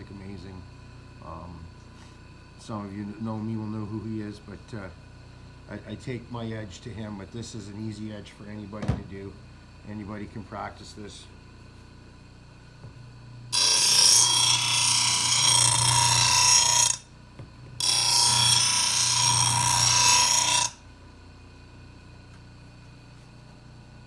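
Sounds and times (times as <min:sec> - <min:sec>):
grinder running faintly: 0:00.0 - 0:24.0
grinder grinding steel blade: 0:13.5 - 0:17.1, 0:17.8 - 0:20.8.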